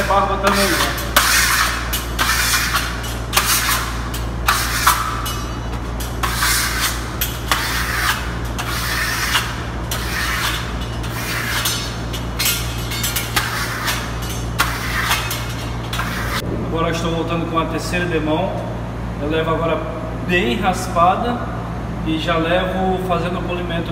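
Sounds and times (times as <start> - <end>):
steel trowel scraping on wall: 0.0 - 16.4
steady low hum: 0.0 - 23.9.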